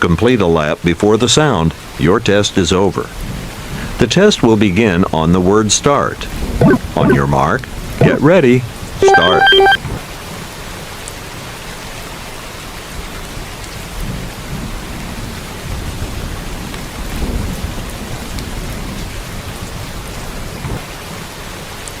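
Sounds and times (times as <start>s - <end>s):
rain pattering: 10.4s - 22.0s.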